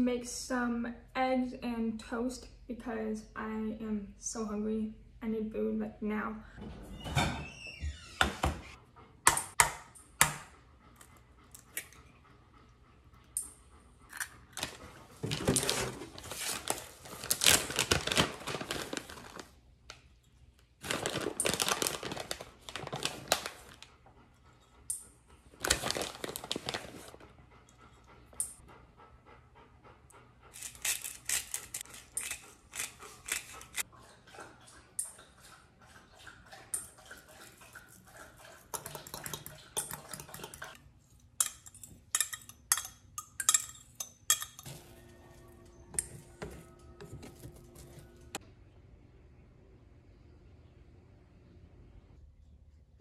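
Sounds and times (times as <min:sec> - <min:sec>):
dog panting: 0:10.5 - 0:15.2, 0:27.1 - 0:30.9, 0:31.6 - 0:40.8
plastic bag rustling: 0:14.6 - 0:19.6, 0:20.8 - 0:23.8, 0:25.6 - 0:27.2, 0:46.1 - 0:48.4.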